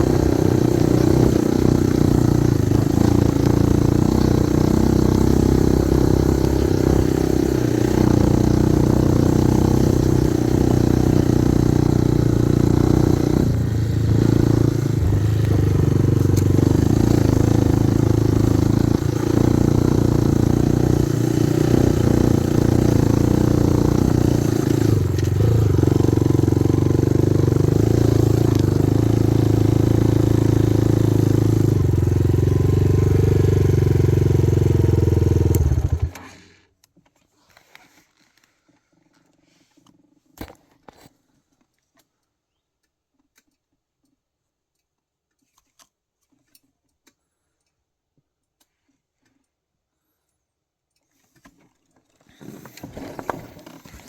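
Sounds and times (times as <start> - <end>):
motorcycle engine running: 0.0 - 36.5.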